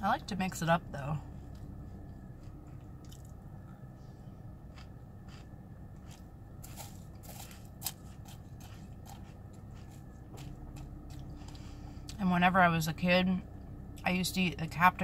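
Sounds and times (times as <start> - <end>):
steady low hum: 0.0 - 15.0
chewing crunchy cereal: 1.4 - 3.4, 4.6 - 12.2.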